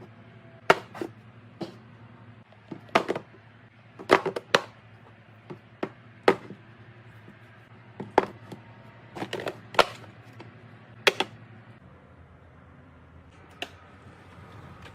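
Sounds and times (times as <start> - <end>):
containers knocking and clicking: 2.5 - 3.4, 4.0 - 4.8, 5.4 - 6.7, 8.0 - 11.4.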